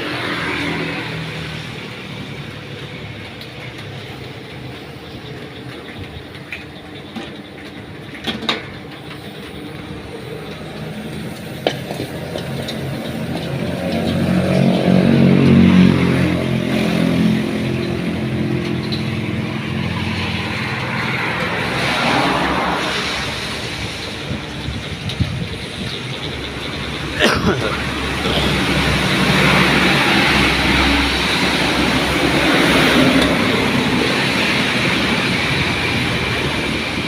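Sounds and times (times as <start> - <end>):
vehicle passing by: 0.0 - 2.6, 12.1 - 25.1, 26.3 - 37.0
rain hissing: 8.9 - 37.0.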